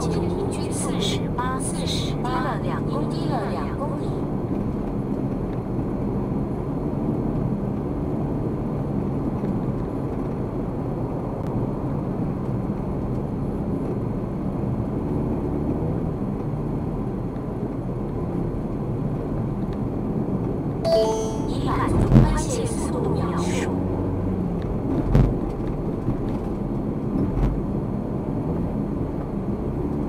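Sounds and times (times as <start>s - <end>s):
car road and engine noise: 0.0s - 20.8s, 21.8s - 30.0s.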